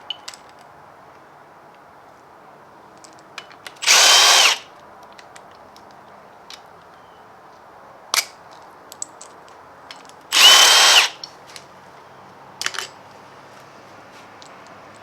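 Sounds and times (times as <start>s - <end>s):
power drill whining: 3.8s - 4.6s, 10.3s - 11.2s.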